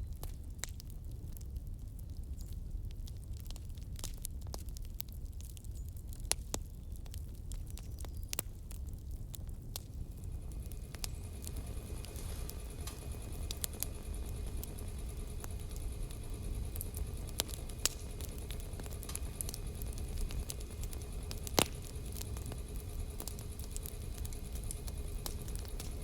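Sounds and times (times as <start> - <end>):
burning wood crackling and popping: 0.0 - 26.0
low rumble: 9.8 - 26.0.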